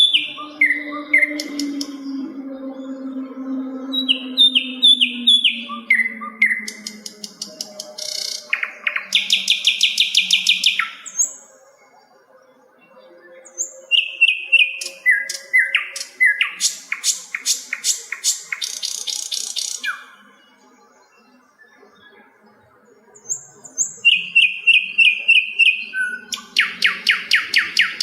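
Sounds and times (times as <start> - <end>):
bird whistling: 0.0 - 2.4, 3.9 - 11.4, 13.5 - 20.2, 23.8 - 28.0.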